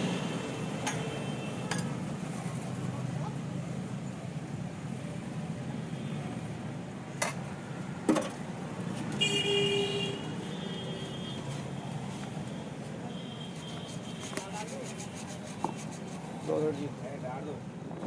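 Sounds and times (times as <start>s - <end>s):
road traffic noise: 0.0s - 18.0s
vehicle horn honking: 9.2s - 11.6s.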